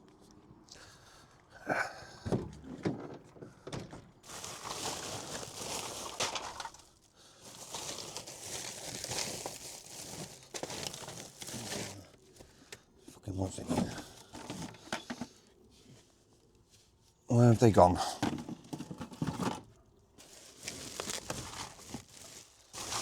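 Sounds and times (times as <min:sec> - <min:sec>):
rustling and clattering: 0:02.3 - 0:06.9, 0:13.6 - 0:15.4, 0:18.1 - 0:23.0.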